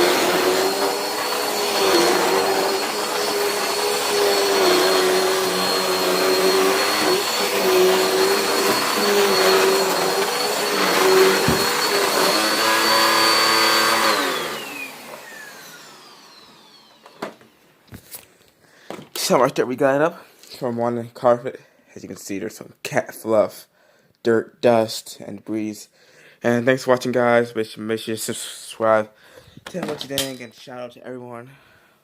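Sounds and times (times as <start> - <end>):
vacuum cleaner motor whine: 0.0 - 17.6.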